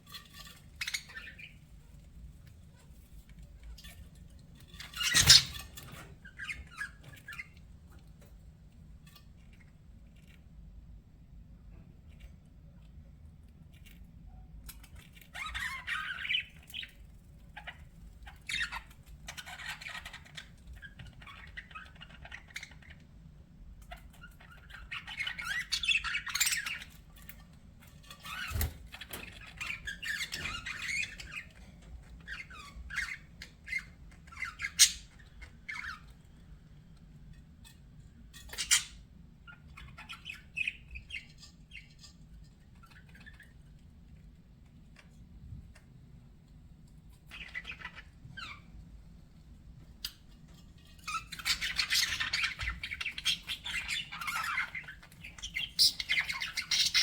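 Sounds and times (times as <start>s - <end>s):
budgerigars chattering: 5.0s - 5.6s, 51.1s - 57.0s.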